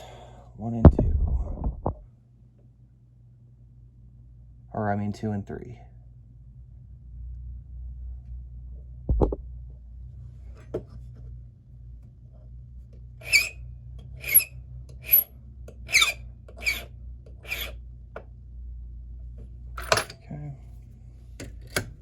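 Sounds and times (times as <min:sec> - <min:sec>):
low thump: 0:00.9 - 0:02.0, 0:09.1 - 0:09.5
hand file rasping on key blank: 0:13.2 - 0:13.6, 0:14.2 - 0:15.3, 0:15.9 - 0:17.8.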